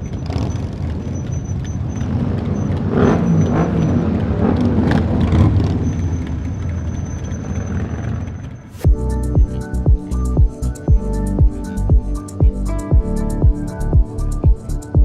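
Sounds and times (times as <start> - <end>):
motorcycle engine running: 8.0 - 15.0.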